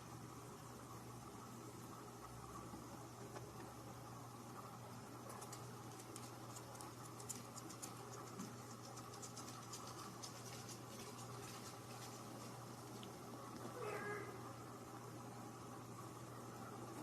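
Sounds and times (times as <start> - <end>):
steady low hum: 0.0 - 17.0
light scratching and tapping: 5.2 - 13.2.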